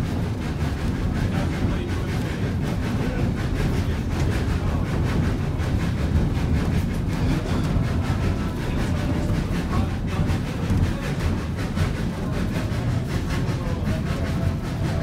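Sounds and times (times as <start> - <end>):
steam locomotive rumbling uphill: 0.0 - 15.0.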